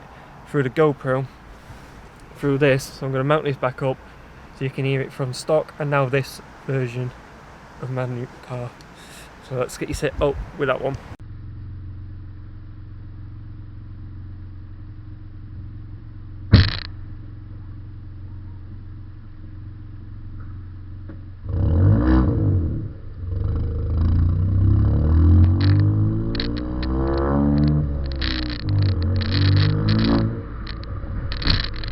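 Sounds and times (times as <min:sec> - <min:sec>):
car exhaust idling and revving: 0:10.7 - 0:31.9
sharp thump: 0:16.5 - 0:17.0.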